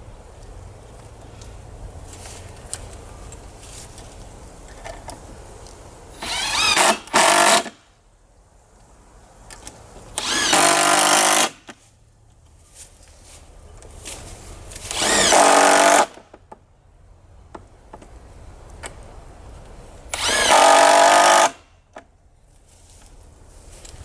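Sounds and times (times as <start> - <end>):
power drill driving screws: 6.2 - 7.8, 10.2 - 11.7, 14.9 - 16.2, 20.1 - 21.6.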